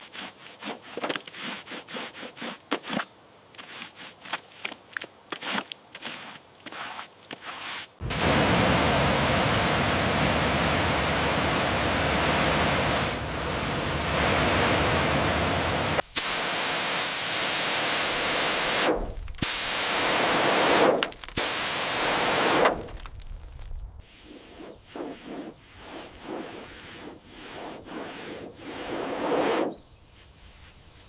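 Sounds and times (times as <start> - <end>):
pressure washer spraying: 8.0 - 22.8.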